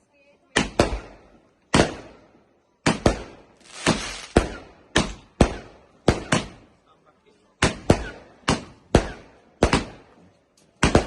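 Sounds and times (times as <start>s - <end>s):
sharp bangs: 2.8s - 6.6s.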